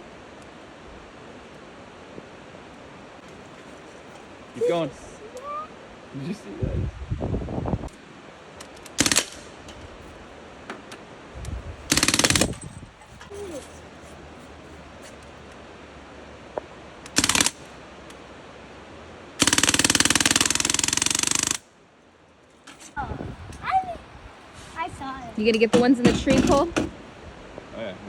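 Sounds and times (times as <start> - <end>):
automatic gunfire bursts: 9.0 - 9.6, 11.9 - 12.6, 17.1 - 17.6, 19.4 - 21.6.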